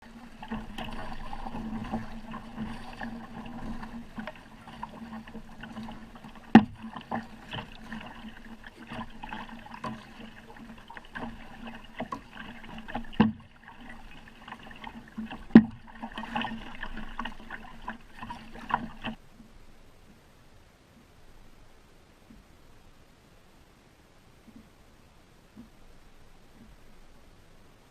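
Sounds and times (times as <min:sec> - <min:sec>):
water splashing from paddling: 0:00.0 - 0:19.2.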